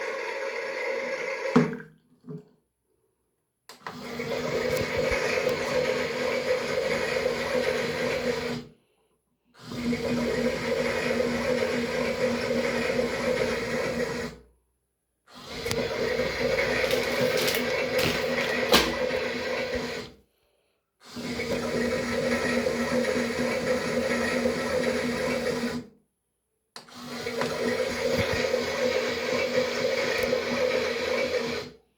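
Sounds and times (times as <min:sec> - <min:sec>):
water churning: 0:16.6 - 0:19.1.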